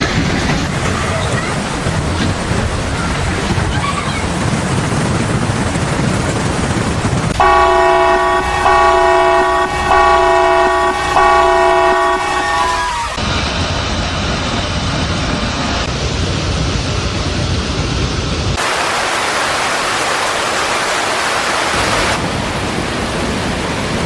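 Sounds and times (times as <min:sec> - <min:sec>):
steady rushing noise: 0:00.0 - 0:24.0
multi-note horn blasts: 0:07.3 - 0:13.2.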